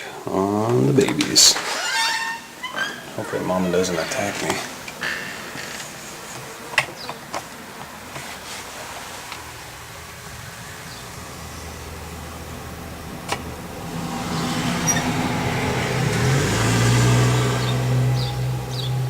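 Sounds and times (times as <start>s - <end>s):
motor vehicle engine passing: 9.5s - 19.0s.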